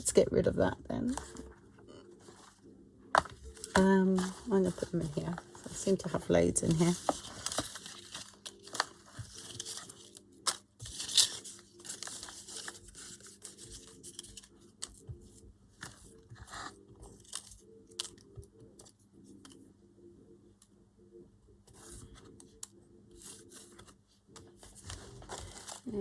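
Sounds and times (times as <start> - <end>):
paper rustling and crinkling: 3.2 - 18.2, 23.1 - 26.0.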